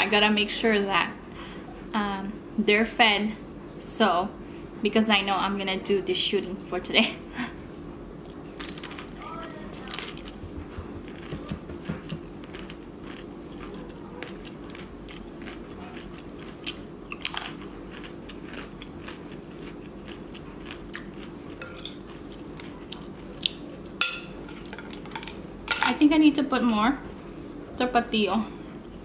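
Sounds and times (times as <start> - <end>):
crunching bites of tostada: 8.2 - 24.0
chewing: 8.2 - 25.4.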